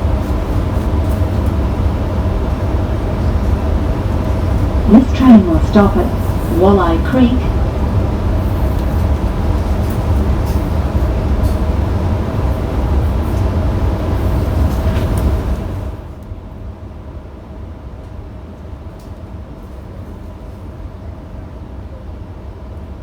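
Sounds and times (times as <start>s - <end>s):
faint humming tones: 3.0s - 8.6s
train wheels rumbling on track: 7.4s - 16.1s.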